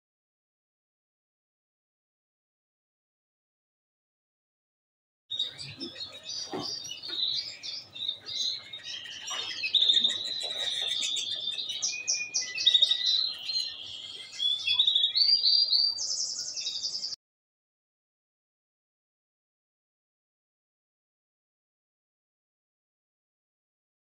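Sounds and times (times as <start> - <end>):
canary singing: 5.3 - 17.2.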